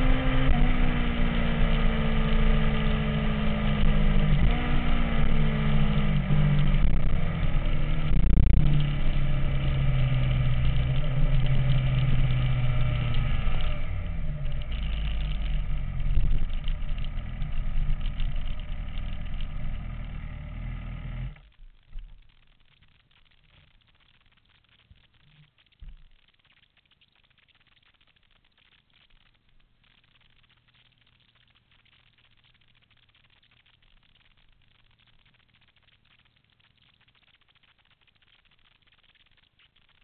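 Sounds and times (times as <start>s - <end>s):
motorcycle engine revving: 0.0s - 21.5s.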